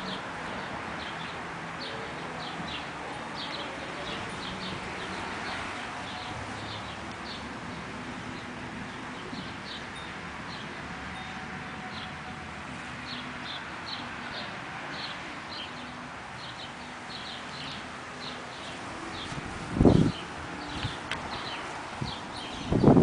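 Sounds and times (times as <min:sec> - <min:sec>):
small birds chirping: 0:13.0 - 0:23.0.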